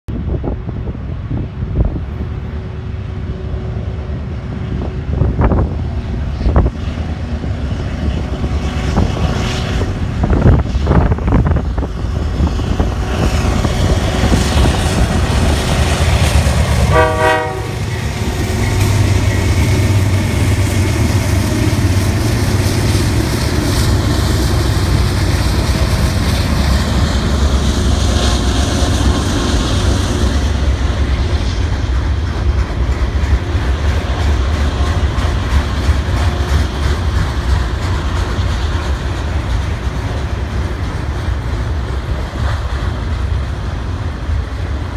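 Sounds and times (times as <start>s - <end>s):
diesel locomotive engine: 0.1s - 44.9s
train horn toot: 16.8s - 18.2s.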